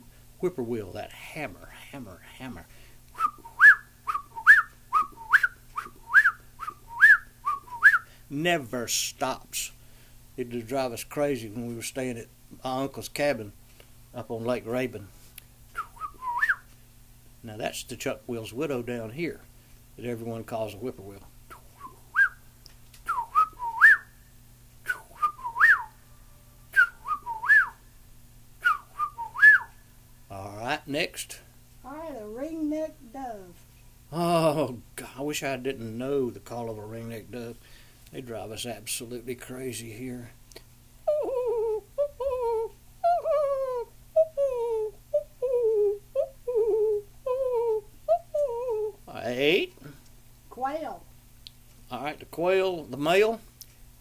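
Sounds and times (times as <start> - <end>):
person whistling bird song: 3.2 - 8.1, 15.7 - 16.7, 21.5 - 22.4, 23.0 - 24.2, 24.8 - 26.0, 26.7 - 27.8, 28.6 - 29.8
man imitating dove cooing: 34.1 - 34.8, 41.0 - 49.9.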